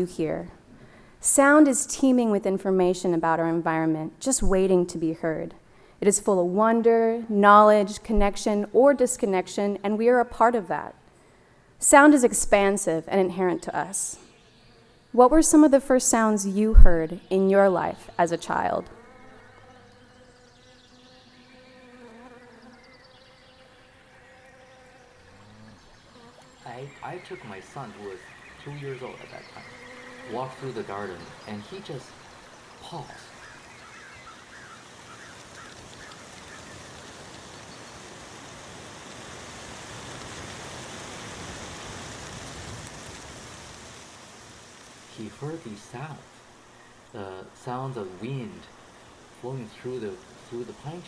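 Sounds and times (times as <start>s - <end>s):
faint buzzing drone: 11.3s - 51.0s
wind rushing through pine trees: 25.1s - 51.0s.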